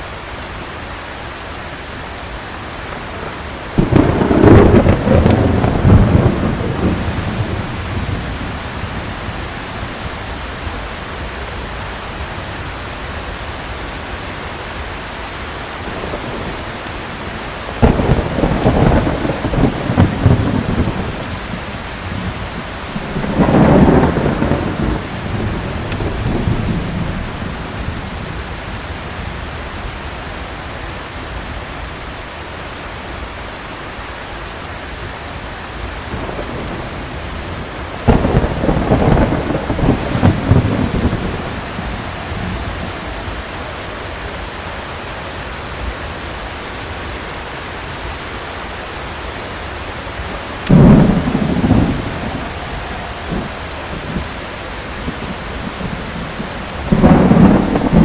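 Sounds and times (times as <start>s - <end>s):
heavy rain falling: 0.0s - 58.0s
thunder cracks and rumbles: 2.5s - 11.1s, 15.7s - 30.5s, 35.9s - 44.6s, 50.0s - 58.0s.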